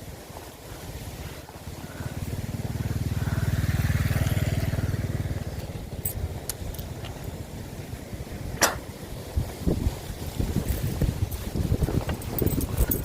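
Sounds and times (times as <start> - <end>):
small engine passing by: 0.8 - 8.5.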